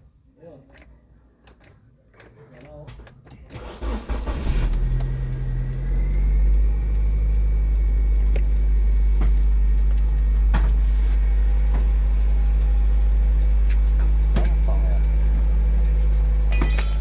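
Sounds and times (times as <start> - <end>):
car engine starting and idling: 3.5 - 17.0.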